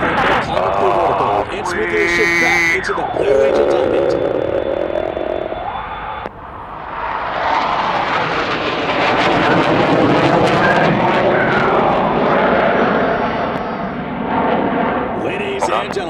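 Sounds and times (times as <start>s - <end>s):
jet roar: 0.0s - 16.0s.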